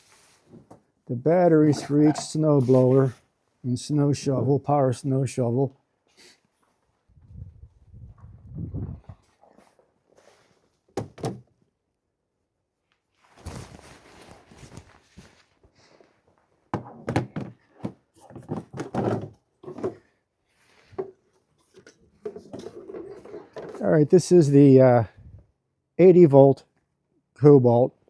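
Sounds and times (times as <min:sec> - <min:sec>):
dull thunks of equipment handled: 0:11.0 - 0:11.4.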